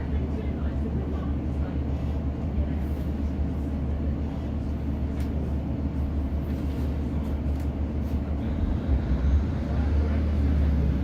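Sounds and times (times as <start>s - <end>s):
diesel train engine rumble: 0.0s - 11.0s.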